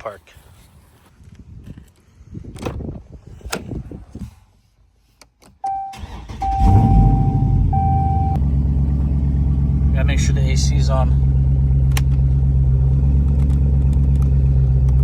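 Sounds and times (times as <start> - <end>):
car warning chime: 5.6 - 8.4
car engine starting and idling: 5.6 - 15.0.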